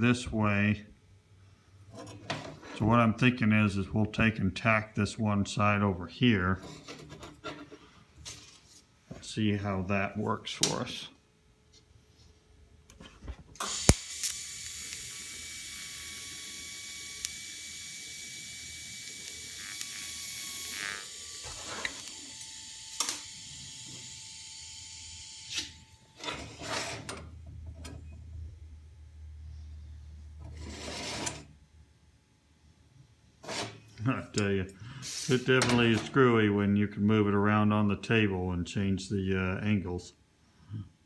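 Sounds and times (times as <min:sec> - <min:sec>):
welding arc hissing: 0:13.6 - 0:26.1, 0:35.0 - 0:35.5.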